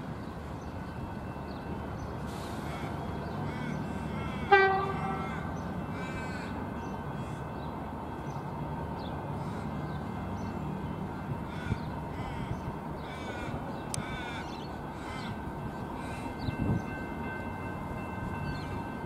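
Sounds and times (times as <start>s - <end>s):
electric train rumbling: 0.0s - 19.0s
crow-like bird calls: 2.7s - 7.6s, 11.5s - 15.4s.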